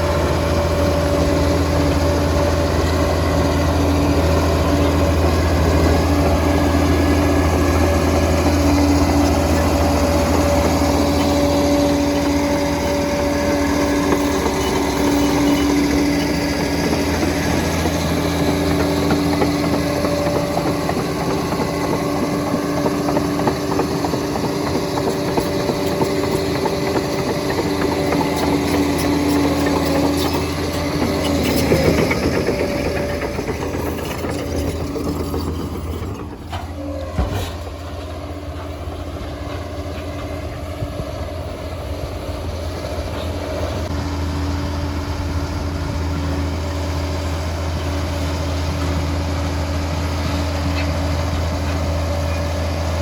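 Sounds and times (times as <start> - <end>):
diesel engine droning: 0.0 - 53.0
fast rattle of clicks: 12.9 - 36.6.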